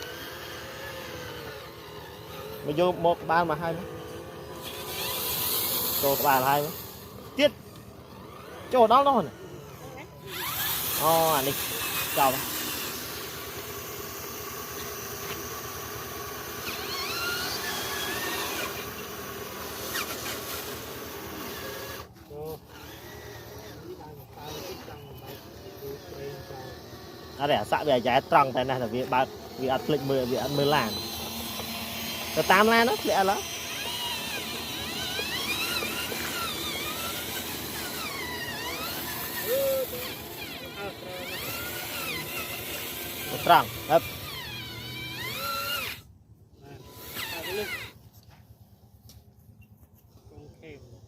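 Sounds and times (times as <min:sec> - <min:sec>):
rising and falling whines: 0:00.0 - 0:48.2
electric motor whirring: 0:00.0 - 0:51.0.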